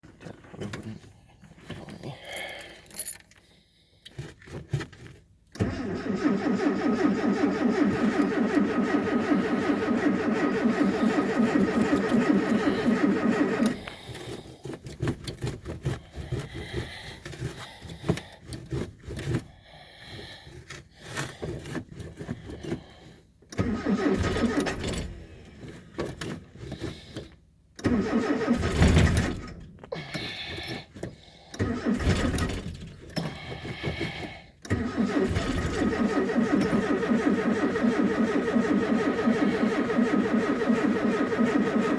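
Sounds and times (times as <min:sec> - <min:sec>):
engine cranking on starter: 0:05.5 - 0:19.4, 0:23.4 - 0:41.9.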